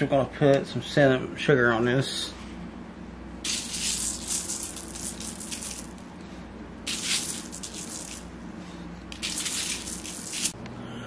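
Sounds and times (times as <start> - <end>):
sugar sprinkled on dough: 3.4 - 6.0, 6.9 - 8.3, 9.1 - 10.6.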